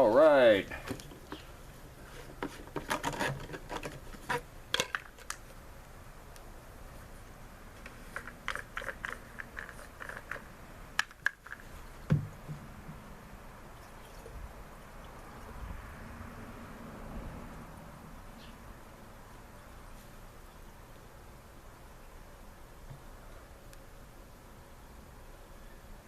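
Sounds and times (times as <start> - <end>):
dull knock: 12.1 - 12.6.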